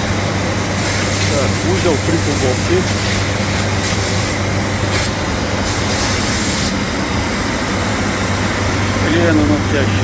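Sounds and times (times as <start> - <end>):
high hiss: 0.8 - 6.8.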